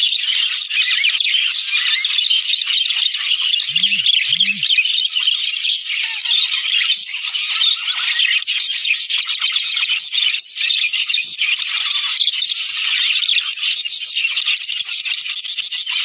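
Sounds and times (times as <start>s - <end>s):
budgerigars chattering: 3.5s - 4.8s.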